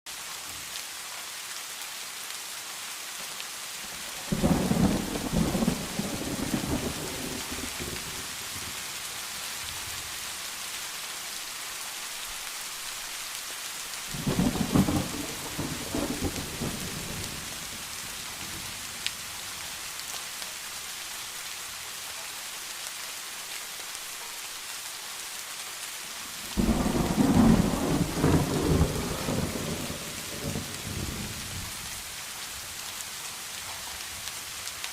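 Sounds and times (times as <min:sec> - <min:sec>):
steady rain hiss: 0:00.1 - 0:34.9
thunder rolling: 0:04.3 - 0:08.2, 0:14.2 - 0:17.5, 0:26.6 - 0:31.7.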